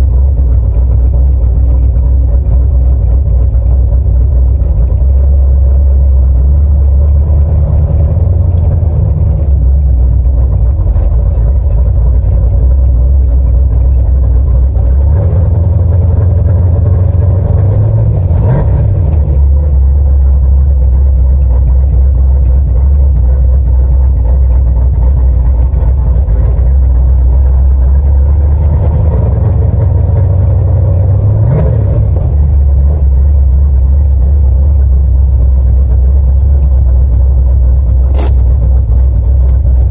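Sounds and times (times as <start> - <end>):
car engine idling: 0.0 - 39.9
engine revving: 14.6 - 20.6, 25.7 - 33.9, 38.0 - 38.8.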